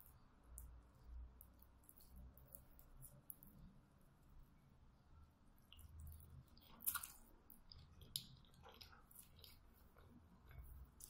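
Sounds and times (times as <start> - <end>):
close-up chewing: 5.7 - 11.0.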